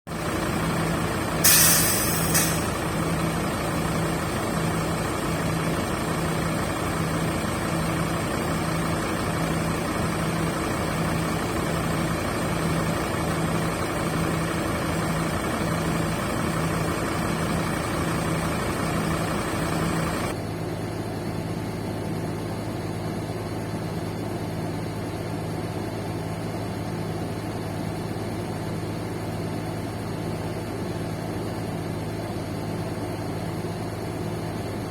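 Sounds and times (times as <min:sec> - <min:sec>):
bus engine idling: 0:00.1 - 0:34.9
air hiss: 0:01.4 - 0:02.8.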